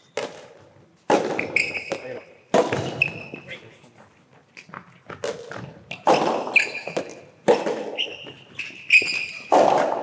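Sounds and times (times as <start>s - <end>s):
shoes squeaking on court: 0.0s - 9.6s
tennis ball struck by rackets: 0.2s - 3.3s, 5.1s - 8.1s, 9.0s - 10.0s.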